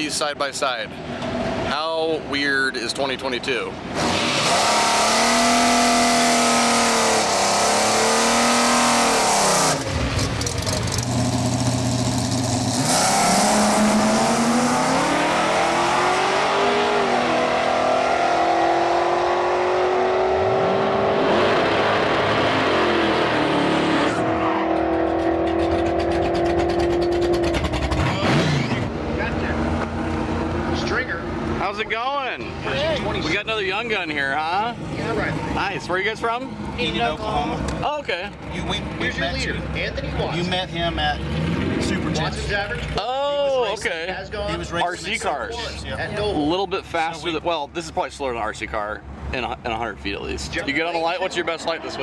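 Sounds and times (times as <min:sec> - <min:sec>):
drag racing cars revving: 0:03.7 - 0:31.9, 0:38.4 - 0:43.0.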